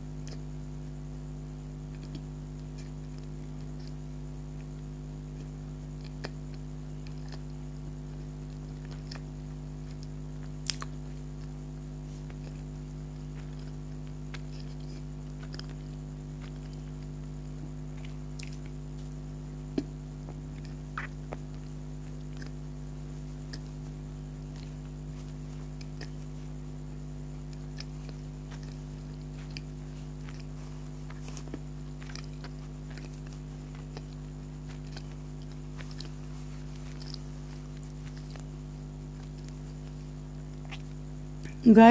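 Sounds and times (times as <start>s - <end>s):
chewing soft doughnut: 0.0s - 41.9s
steady low hum: 0.0s - 41.9s
wet mouth clicks: 0.2s - 0.5s, 5.4s - 7.6s, 18.0s - 22.6s, 23.4s - 23.8s, 25.8s - 26.3s, 27.5s - 36.1s.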